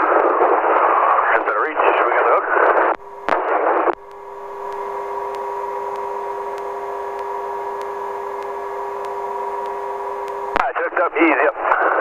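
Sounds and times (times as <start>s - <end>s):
faint regular ticks: 3.0s - 10.6s
helicopter turbine whine: 3.0s - 10.9s
radio voice transmission: 10.4s - 12.0s.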